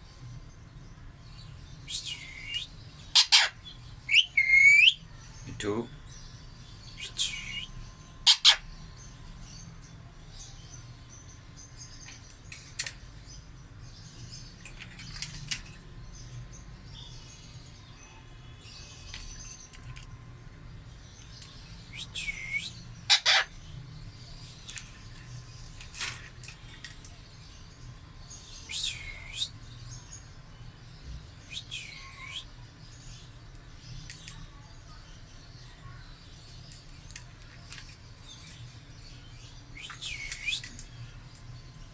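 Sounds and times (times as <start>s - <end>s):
parrot calling: 2.0s - 5.0s, 8.2s - 8.7s, 21.9s - 23.6s.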